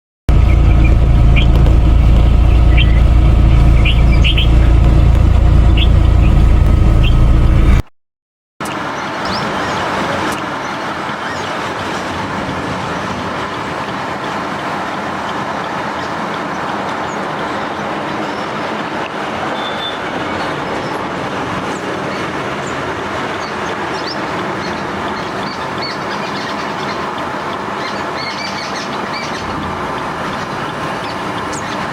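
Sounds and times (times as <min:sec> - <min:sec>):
bird chirps: 0:00.3 - 0:07.8, 0:19.5 - 0:21.0, 0:23.4 - 0:31.9
low rumble of motor or traffic: 0:00.3 - 0:07.8, 0:08.7 - 0:31.9.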